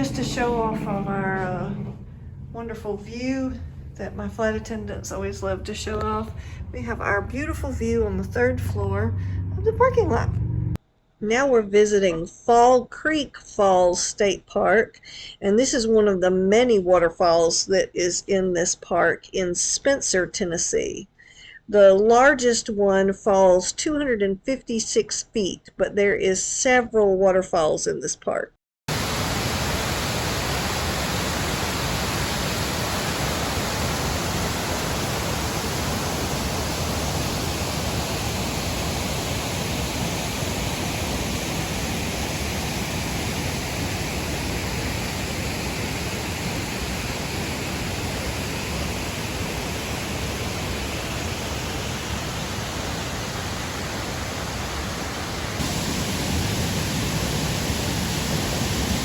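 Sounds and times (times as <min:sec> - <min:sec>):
waterfall rushing: 0:28.9 - 0:59.0.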